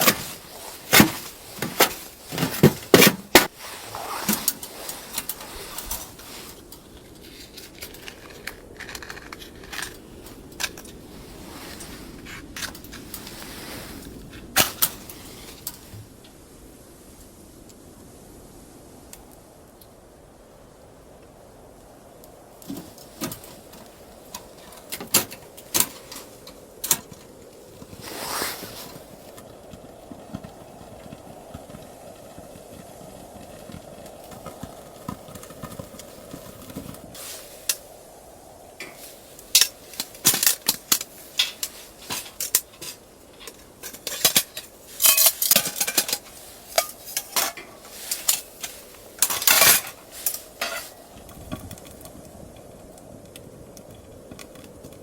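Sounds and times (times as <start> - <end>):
pots and pans clinking: 0.0 - 3.5, 40.0 - 51.0.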